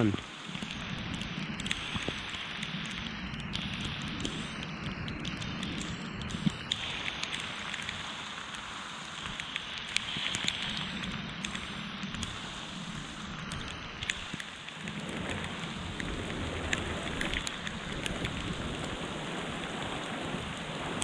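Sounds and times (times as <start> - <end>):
raindrops ticking close by: 0.0 - 21.0
steady rain falling: 0.0 - 21.0
low rumble: 14.8 - 21.0.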